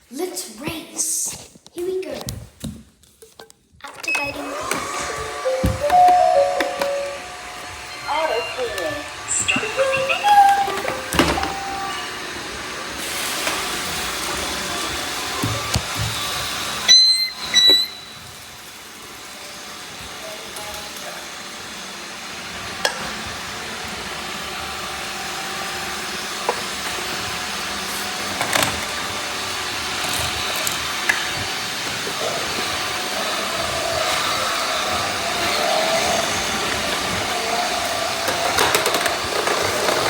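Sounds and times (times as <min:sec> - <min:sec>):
robot vacuum cleaners whirring: 0:03.9 - 0:40.0
loud electronic beeps: 0:05.0 - 0:12.1, 0:16.9 - 0:18.2.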